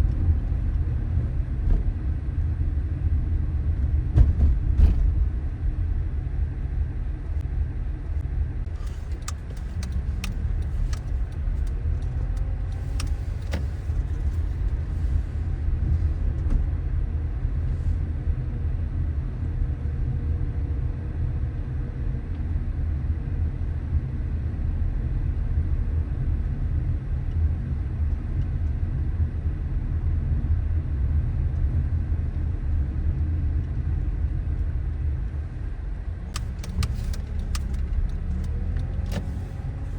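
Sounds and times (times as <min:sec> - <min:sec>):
car engine and road noise: 0:00.0 - 0:39.9
light clicks: 0:36.3 - 0:39.6.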